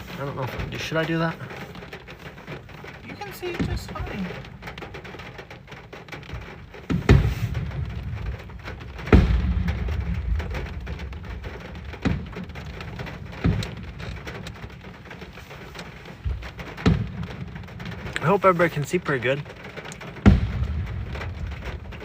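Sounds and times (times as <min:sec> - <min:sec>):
fireworks booming: 0:00.0 - 0:22.0
rain on a car: 0:00.0 - 0:22.0.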